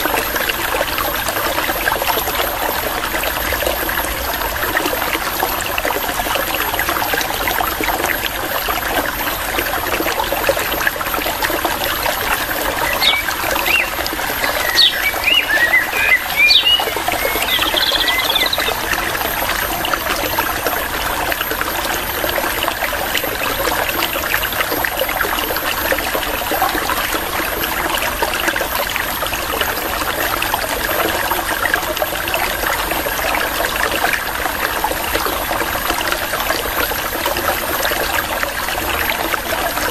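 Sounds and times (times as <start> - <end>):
stream water trickling: 0.0 - 39.9
quick bird chirps: 12.9 - 18.7.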